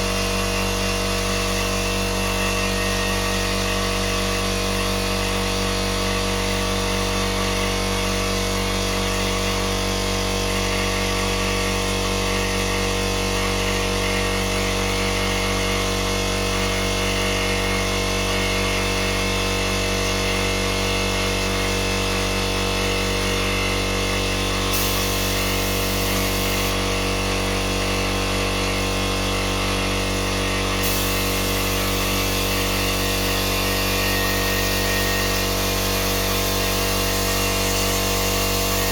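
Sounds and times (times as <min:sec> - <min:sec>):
power tool motor whining: 0:24.5 - 0:27.0, 0:30.7 - 0:38.9.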